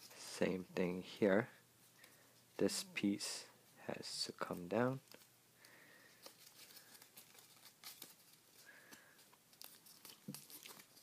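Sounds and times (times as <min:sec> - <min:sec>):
paper rustling and crinkling: 0:06.1 - 0:11.0.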